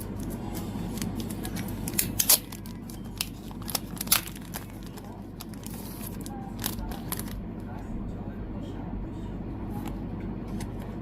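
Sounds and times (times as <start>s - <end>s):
packaging rustling: 0.2s - 7.4s
packaging clicking: 1.0s - 7.4s.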